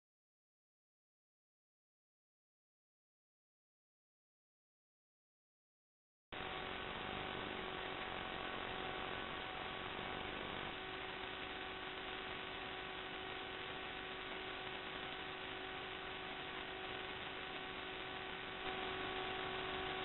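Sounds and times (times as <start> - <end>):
constant hum: 6.4 - 20.0
electrical hiss: 6.4 - 20.0.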